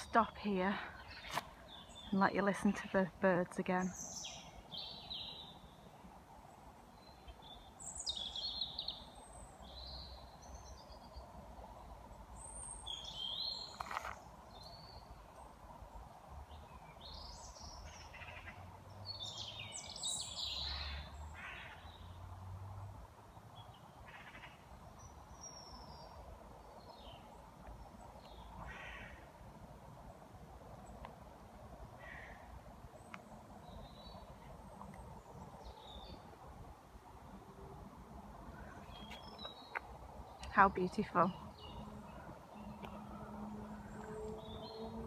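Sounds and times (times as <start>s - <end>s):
songbirds chirping and singing: 0.0s - 6.0s, 6.6s - 15.7s, 16.3s - 22.2s, 38.3s - 45.0s.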